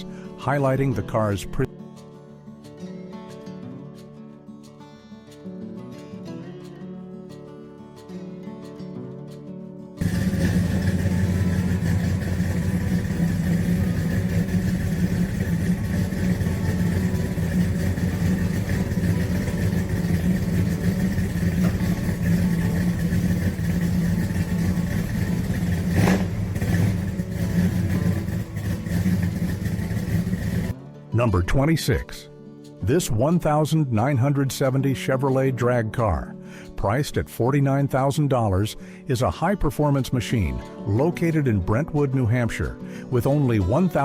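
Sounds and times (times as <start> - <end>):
car engine running: 10.0 - 30.8.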